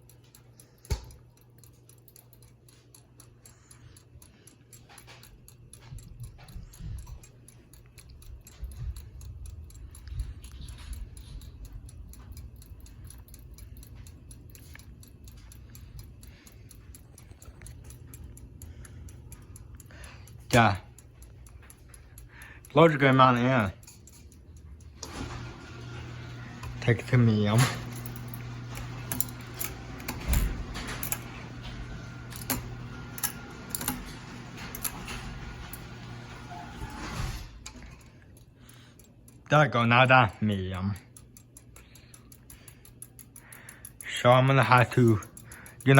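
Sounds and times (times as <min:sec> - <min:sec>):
ceiling fan ticking: 0:00.0 - 0:45.9
pull-chain switch clicks: 0:00.8 - 0:02.5, 0:23.0 - 0:36.4.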